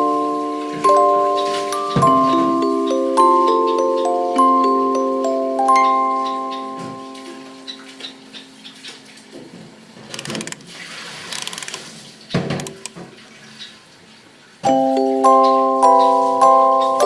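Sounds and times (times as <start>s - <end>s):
clicks scrapes and rustling: 10.2s - 11.9s, 12.6s - 13.0s.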